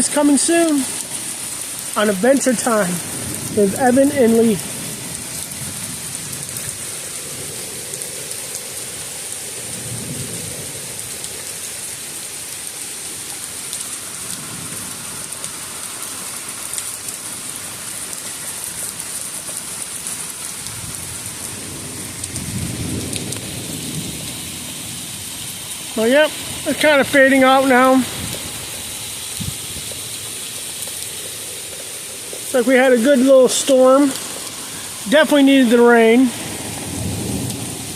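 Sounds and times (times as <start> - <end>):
heavy rain pouring: 0.0 - 37.9
thunder rumbling: 2.9 - 7.7, 20.6 - 30.1, 32.5 - 37.9.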